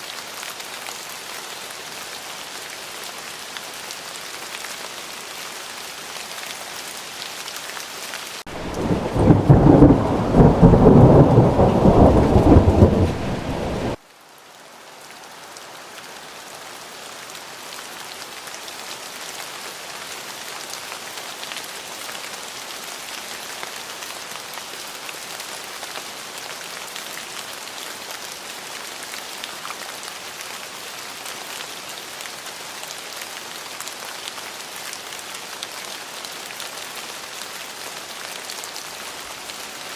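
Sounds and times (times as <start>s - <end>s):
steady rain: 0.0s - 39.9s
rolling thunder: 8.5s - 14.0s.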